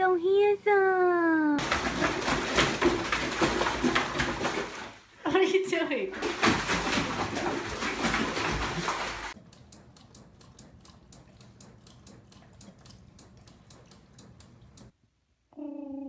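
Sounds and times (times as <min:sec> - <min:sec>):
water splashing in bathtub: 0:01.6 - 0:09.4.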